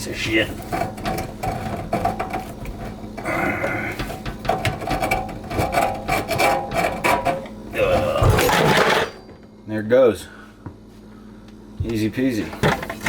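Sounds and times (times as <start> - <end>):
metal clanks and knocks: 0.5 - 9.4.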